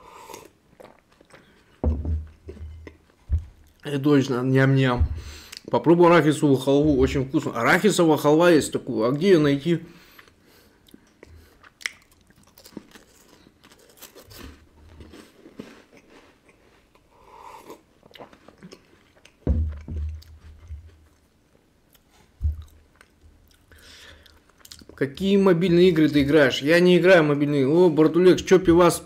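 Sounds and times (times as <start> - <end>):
chewing crisp wafer biscuits: 0.0 - 1.8, 10.1 - 19.4, 20.1 - 25.1
dull low thumps: 1.8 - 3.8, 4.8 - 5.5, 19.5 - 20.9.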